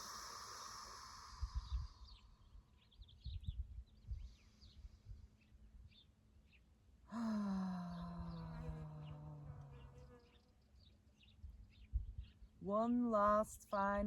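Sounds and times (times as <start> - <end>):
long voiced sigh: 0.0 - 2.2, 7.1 - 9.5
birds chirping faintly: 0.0 - 14.0.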